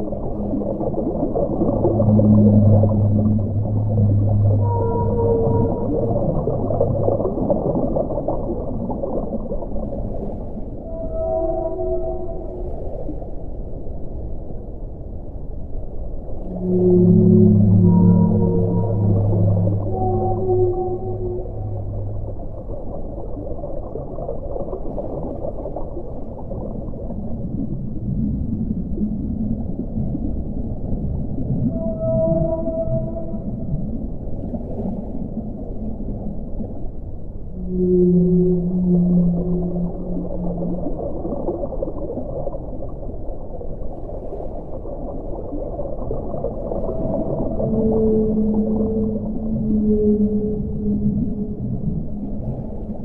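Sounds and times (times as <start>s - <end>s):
whale call: 0.0s - 13.8s, 16.3s - 29.6s, 31.4s - 53.0s
low bubbling water: 0.0s - 53.0s
muffled underwater rumble: 0.0s - 53.0s.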